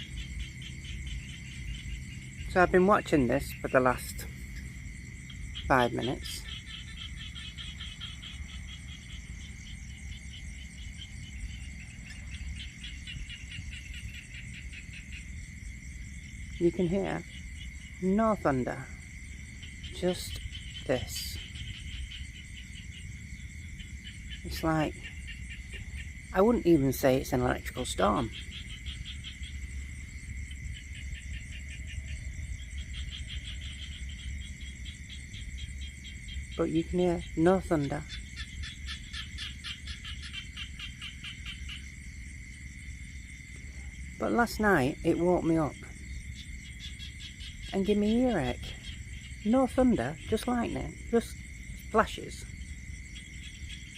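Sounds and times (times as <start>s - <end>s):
crickets chirping: 0.0s - 53.9s
low steady rumble: 0.0s - 53.9s.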